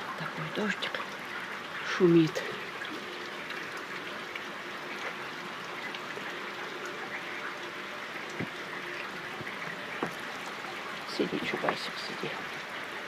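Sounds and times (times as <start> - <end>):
steady rain falling: 0.0 - 13.0
raindrop taps: 8.3 - 10.6, 11.2 - 12.1.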